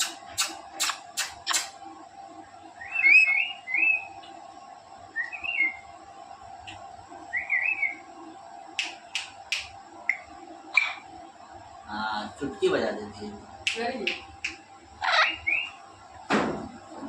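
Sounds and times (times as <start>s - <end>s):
sharp click: 0.0s - 1.7s
parrot warbling chirps: 10.7s - 11.1s, 15.0s - 15.7s.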